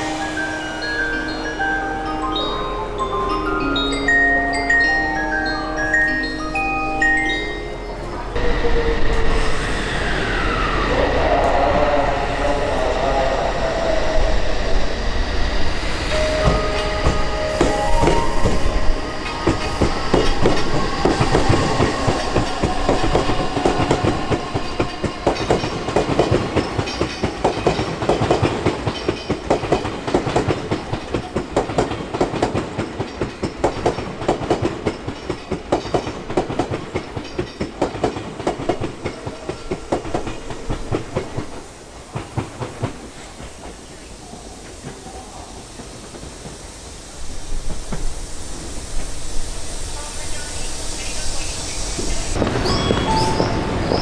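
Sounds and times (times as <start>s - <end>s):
wheel clacks over rail joints: 19.2s - 43.8s.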